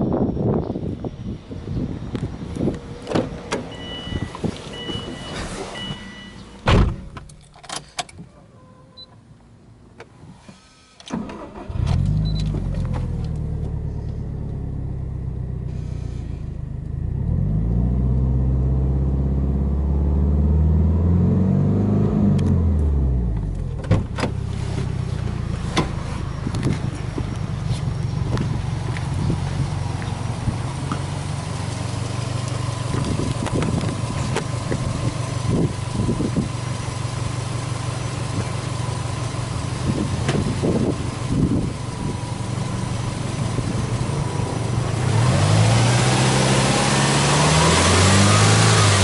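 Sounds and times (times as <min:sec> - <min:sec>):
two-tone warning chime: 0:03.7 - 0:06.6
thump: 0:06.6 - 0:07.3, 0:23.8 - 0:24.4, 0:25.7 - 0:26.0
car engine starting and revving: 0:11.1 - 0:49.0.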